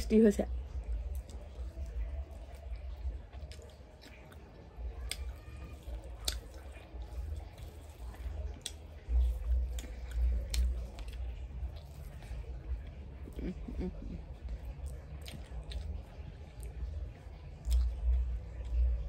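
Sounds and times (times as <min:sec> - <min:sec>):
person chewing food: 0:00.7 - 0:19.0
fingers squishing rice: 0:01.0 - 0:13.6.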